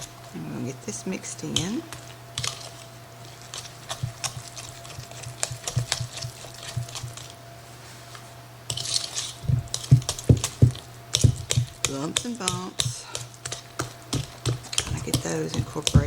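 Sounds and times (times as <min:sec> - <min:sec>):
utensil scraping a bowl: 0:01.3 - 0:07.4, 0:08.7 - 0:16.0
utensil knocking a bowl: 0:09.5 - 0:16.0.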